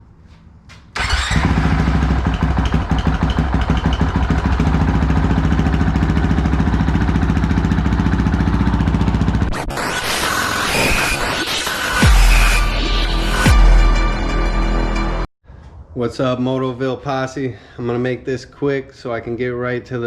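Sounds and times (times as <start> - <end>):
motorcycle engine starting and idling: 0.3 - 9.5.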